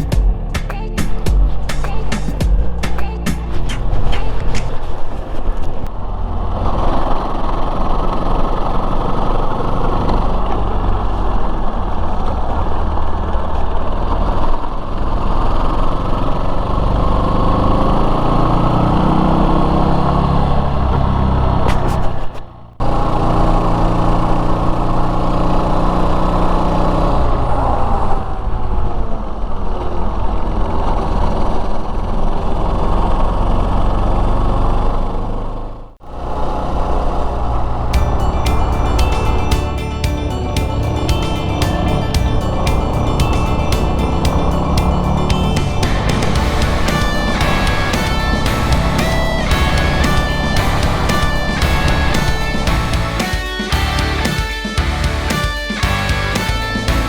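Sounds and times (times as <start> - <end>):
motorcycle engine running: 38.0 - 57.0.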